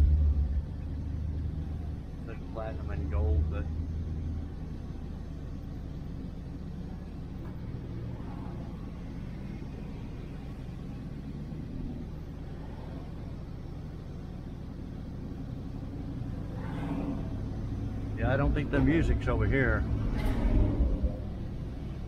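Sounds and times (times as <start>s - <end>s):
car engine droning: 0.0s - 22.0s.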